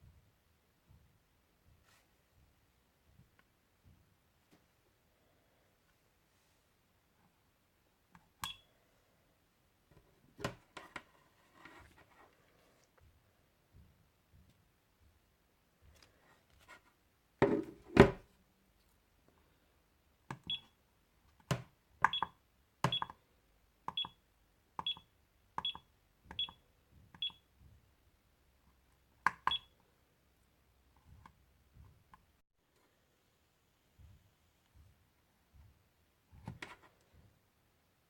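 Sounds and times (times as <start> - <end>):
button clicks with high beeps: 8.4 - 8.6.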